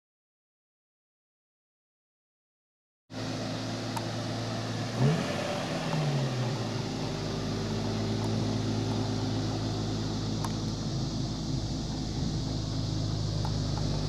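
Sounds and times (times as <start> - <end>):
car engine idling and revving: 3.1 - 14.0.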